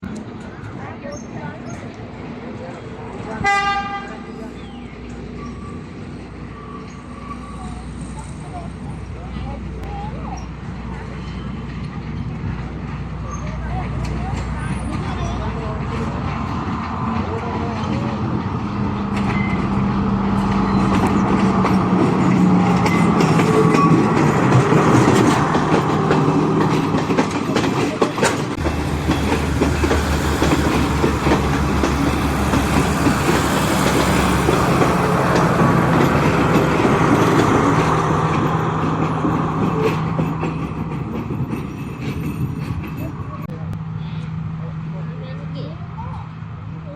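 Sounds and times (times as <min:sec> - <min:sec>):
train engine drone: 0:00.0 - 0:46.9
train wheels clattering on rails: 0:09.8 - 0:43.7.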